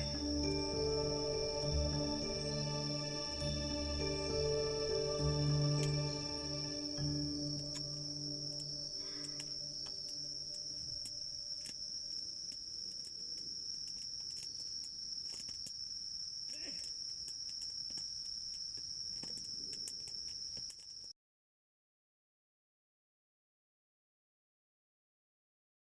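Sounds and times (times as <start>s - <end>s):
soft ambient music: 0.0s - 11.7s
campfire crackling: 0.0s - 21.1s
insects trilling: 0.0s - 21.1s.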